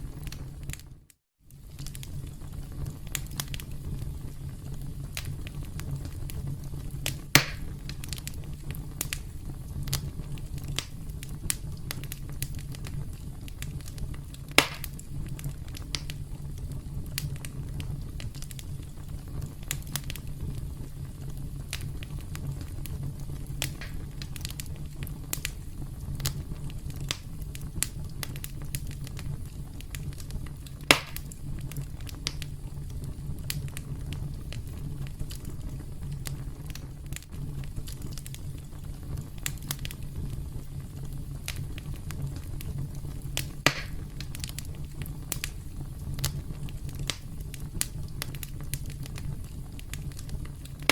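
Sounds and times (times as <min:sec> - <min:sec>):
campfire crackling: 0:00.0 - 0:50.9
sharp loud fire pops: 0:07.0 - 0:08.0, 0:14.5 - 0:15.0, 0:23.6 - 0:24.3, 0:30.8 - 0:31.3, 0:43.6 - 0:44.1.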